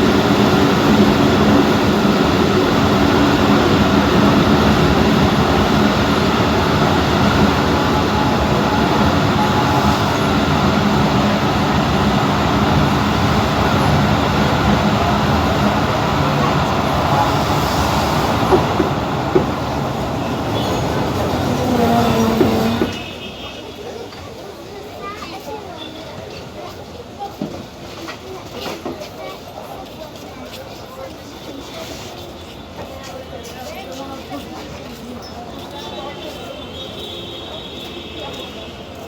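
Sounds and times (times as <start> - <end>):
train wheels rumbling: 0.0 - 23.3.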